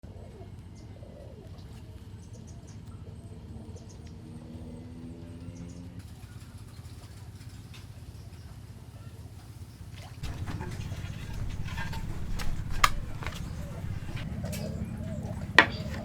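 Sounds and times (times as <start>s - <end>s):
small birds chirping: 10.2s - 16.0s
steady low hum: 10.2s - 16.0s.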